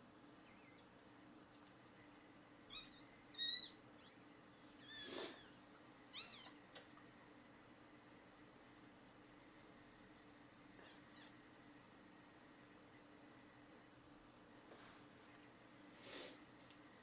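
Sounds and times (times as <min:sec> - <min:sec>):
puppy squeaking: 0:02.7 - 0:04.2.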